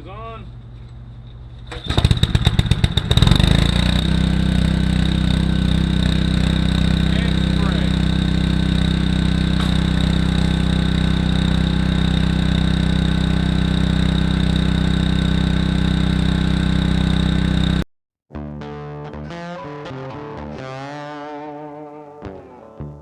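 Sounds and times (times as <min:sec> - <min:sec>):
engine idling: 0:01.6 - 0:17.8.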